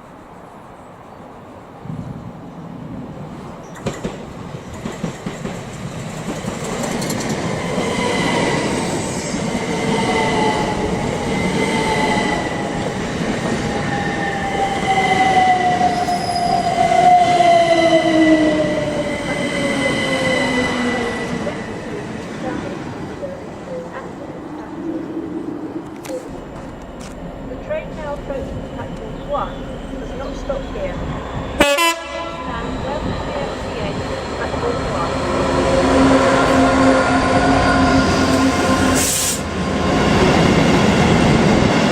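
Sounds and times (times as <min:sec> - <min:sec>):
train running noise: 0:03.2 - 0:41.9
wheels clicking over rail joints: 0:03.6 - 0:07.7
high train squeal: 0:06.8 - 0:21.9, 0:26.1 - 0:31.6, 0:34.6 - 0:40.4.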